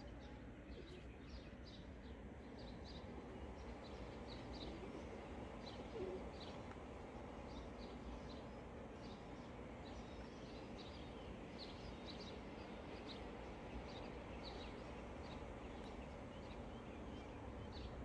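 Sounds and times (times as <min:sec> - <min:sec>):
small birds chirping: 0:07.4 - 0:18.0.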